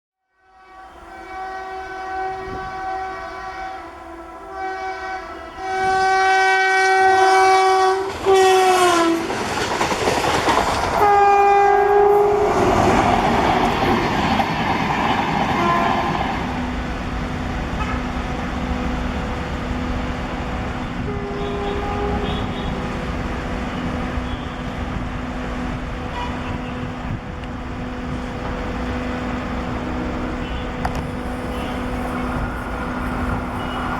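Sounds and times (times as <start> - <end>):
train horn blasts: 0.2 - 9.4, 11.0 - 13.7, 15.4 - 16.6, 17.7 - 18.4, 20.7 - 25.0, 26.0 - 27.2, 29.7 - 33.9
train coaches rushing and clattering: 4.8 - 33.9.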